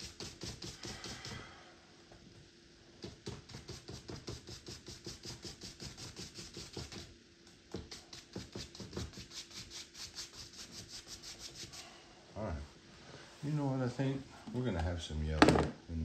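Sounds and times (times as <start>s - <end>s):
paintbrush scrubbing on canvas: 0.0s - 1.3s, 3.0s - 7.1s, 7.7s - 12.0s.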